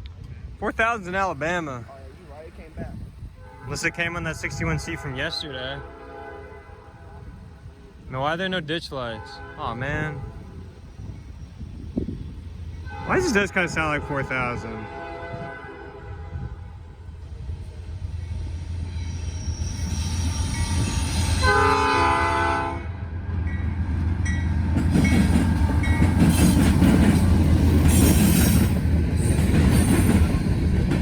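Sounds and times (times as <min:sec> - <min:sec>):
diesel locomotive engine drone: 0:00.0 - 0:31.0
train horn blast: 0:03.4 - 0:08.0, 0:09.1 - 0:10.8, 0:12.8 - 0:17.2, 0:20.0 - 0:23.3.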